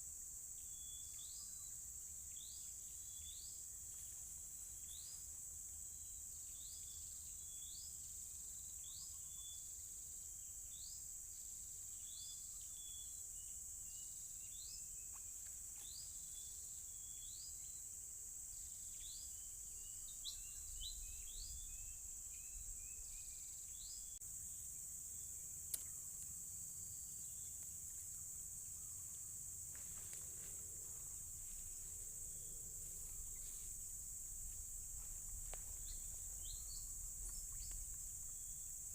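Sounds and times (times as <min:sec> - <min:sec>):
high-pitched insect drone: 0:18.6 - 0:38.9
sharp click: 0:25.7 - 0:26.0.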